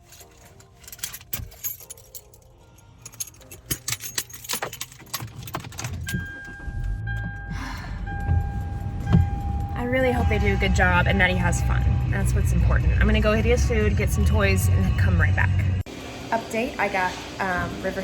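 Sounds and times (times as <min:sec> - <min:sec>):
keys jangling: 0:00.0 - 0:07.3
low rumble: 0:06.6 - 0:15.9.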